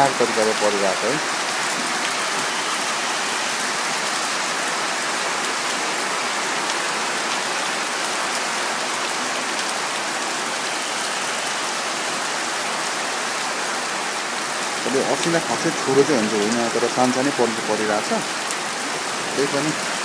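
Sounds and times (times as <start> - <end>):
heavy rain and hail on tarpaulin: 0.0 - 20.0.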